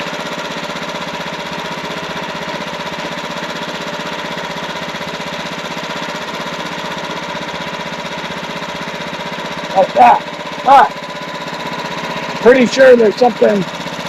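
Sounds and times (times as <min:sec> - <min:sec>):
sawmill engine idling: 0:00.0 - 0:14.0.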